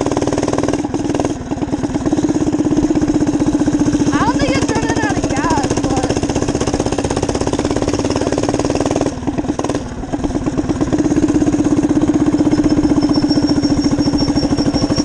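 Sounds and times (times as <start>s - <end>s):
minibike engine running: 0.0s - 15.0s.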